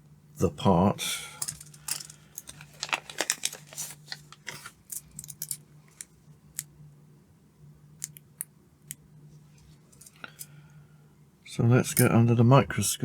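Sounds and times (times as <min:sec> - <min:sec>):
low steady hum: 0:00.0 - 0:13.0
clicks of handling small parts: 0:01.4 - 0:06.7, 0:09.9 - 0:10.6.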